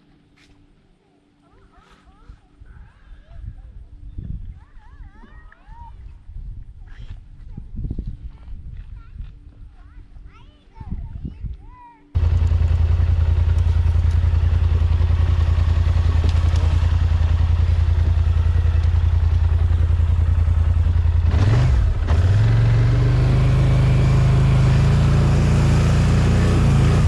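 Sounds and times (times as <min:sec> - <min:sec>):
atv engine idling and revving: 0:12.2 - 0:27.0.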